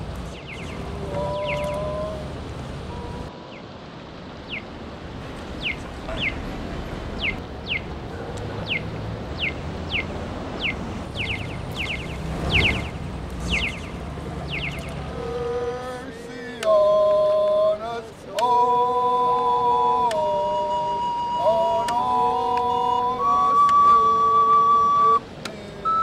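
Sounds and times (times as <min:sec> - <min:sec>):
bird chirping: 0:00.3 - 0:02.2, 0:04.4 - 0:04.8, 0:05.5 - 0:15.1.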